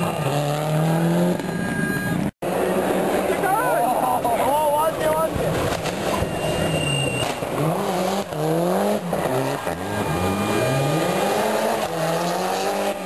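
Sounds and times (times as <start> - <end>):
rally car engine revving: 0.0 - 1.6, 5.5 - 13.0.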